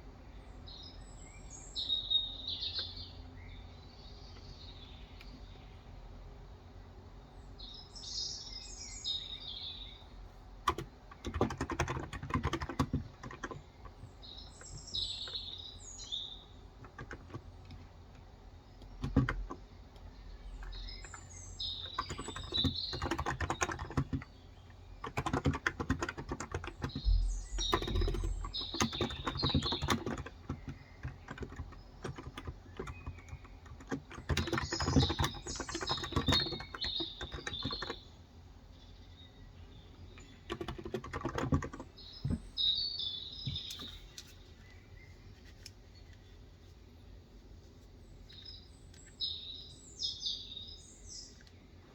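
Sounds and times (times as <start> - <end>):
small birds chirping: 0.0 - 51.9
typing on keyboard: 10.6 - 15.6, 16.8 - 38.1, 40.2 - 42.6.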